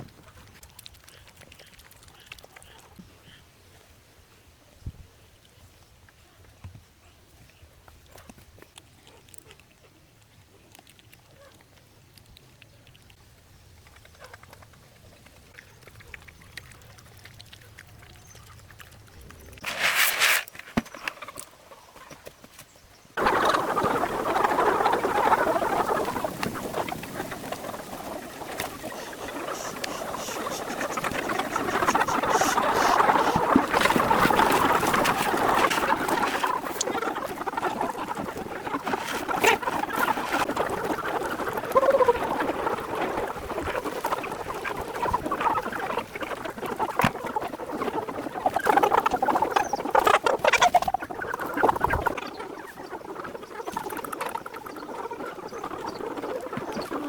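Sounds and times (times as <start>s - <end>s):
poultry and ducks calling: 23.2s - 57.0s.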